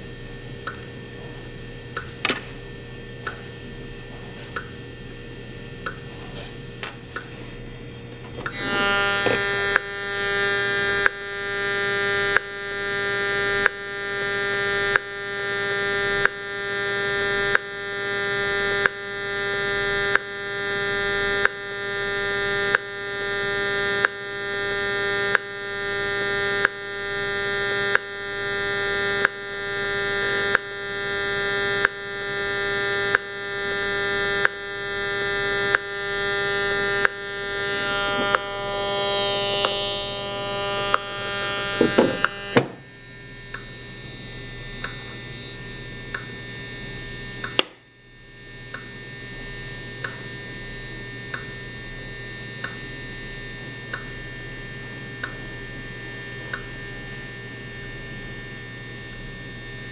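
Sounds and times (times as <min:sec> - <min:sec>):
steady electronic buzz: 0:00.0 - 0:59.9
sharp meter clicks: 0:00.6 - 0:00.9, 0:03.2 - 0:03.6, 0:04.5 - 0:04.8, 0:05.8 - 0:06.1, 0:12.2 - 0:12.8, 0:19.7 - 0:28.3, 0:29.1 - 0:29.8, 0:30.4 - 0:35.9, 0:36.5 - 0:38.5, 0:40.8 - 0:42.8, 0:43.5 - 0:43.7, 0:44.8 - 0:45.1, 0:46.1 - 0:46.4, 0:47.4 - 0:47.9, 0:48.7 - 0:49.0, 0:50.0 - 0:50.3, 0:51.3 - 0:51.6, 0:53.9 - 0:54.2, 0:55.2 - 0:55.4, 0:56.5 - 0:56.7.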